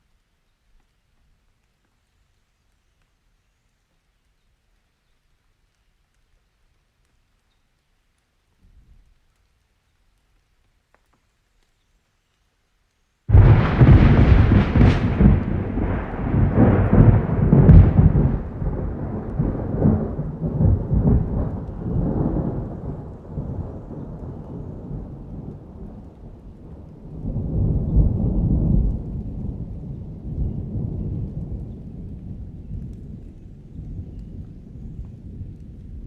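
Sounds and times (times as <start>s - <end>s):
thunder rolling and rumbling: 13.3s - 36.0s.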